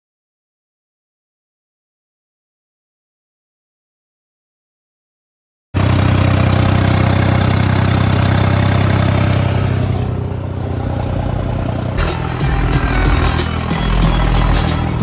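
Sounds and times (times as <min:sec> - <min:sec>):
tractor engine running: 0:05.8 - 0:15.0.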